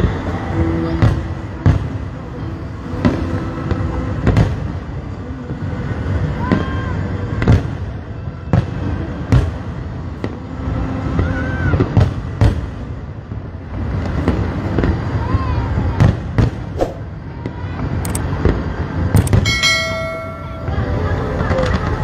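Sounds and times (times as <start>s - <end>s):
fireworks booming: 0.9s - 22.0s
low background din: 19.2s - 22.0s.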